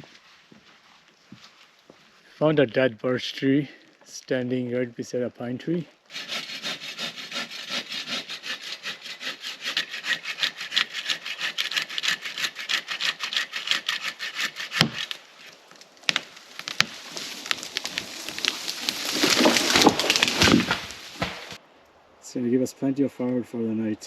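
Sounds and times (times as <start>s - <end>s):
hand saw cutting wood: 6.1s - 15.6s, 16.6s - 21.6s
wood cracking: 10.2s - 21.6s.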